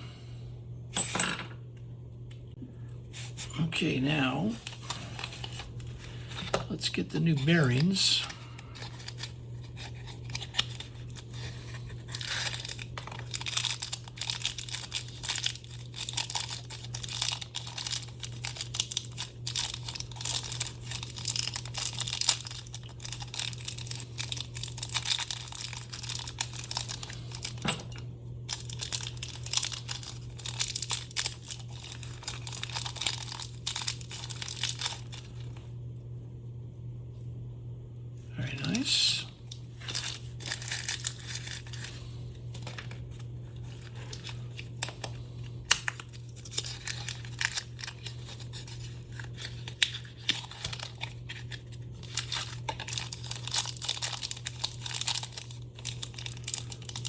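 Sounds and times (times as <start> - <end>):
steady low hum: 0.0 - 57.0
packaging crinkling and tearing: 7.4 - 27.7, 28.4 - 35.7, 39.7 - 57.0.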